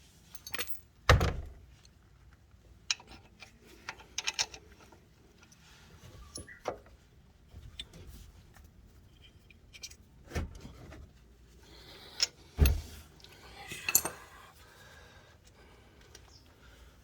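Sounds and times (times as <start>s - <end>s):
metal hand tools clinking: 13.6s - 14.4s.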